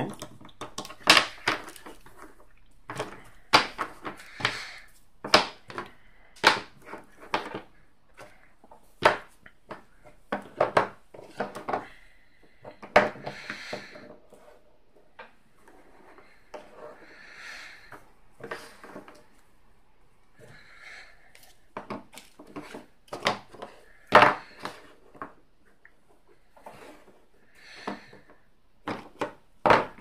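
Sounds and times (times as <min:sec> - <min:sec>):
plastic pieces clacking on a table: 0:00.0 - 0:08.3.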